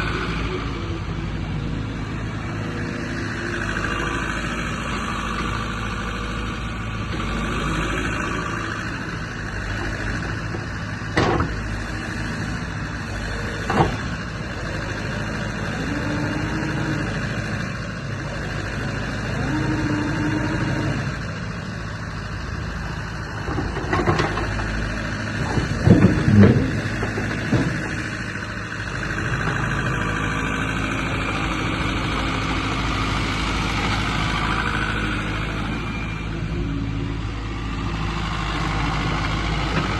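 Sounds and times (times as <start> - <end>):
excavator engine running: 0.0 - 39.9
metallic knocks and clanks: 25.4 - 28.1.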